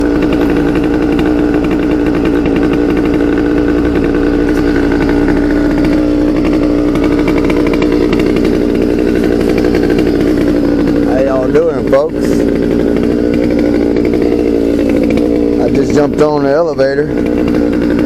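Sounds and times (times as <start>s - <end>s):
small gasoline engine running: 0.0s - 18.0s.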